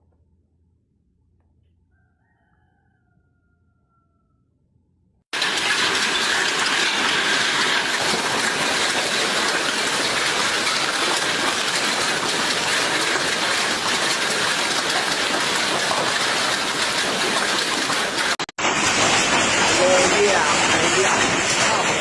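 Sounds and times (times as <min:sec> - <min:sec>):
hail and rain falling hard: 0:05.4 - 0:22.0.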